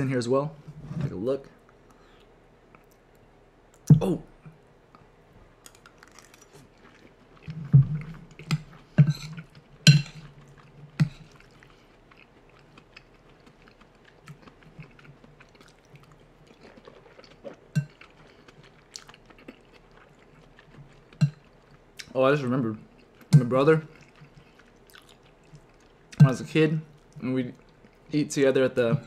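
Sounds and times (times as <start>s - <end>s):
person chewing soft food: 5.7s - 22.2s, 22.8s - 28.2s.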